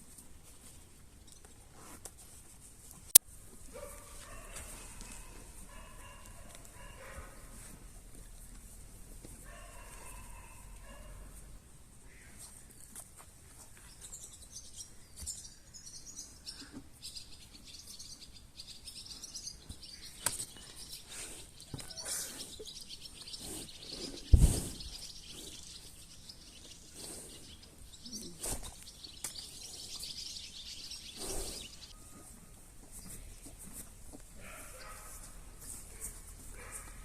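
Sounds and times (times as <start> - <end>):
small birds chirping: 12.0 - 33.6, 34.2 - 37.0
loud thump: 24.3 - 24.8.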